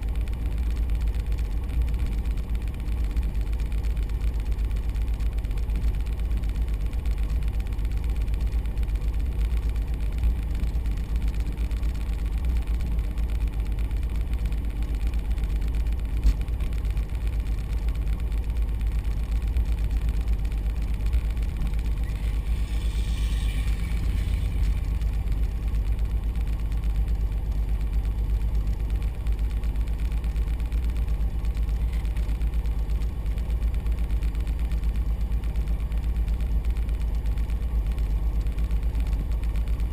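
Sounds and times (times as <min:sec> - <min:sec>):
light aircraft engine drone: 0:00.0 - 0:39.9.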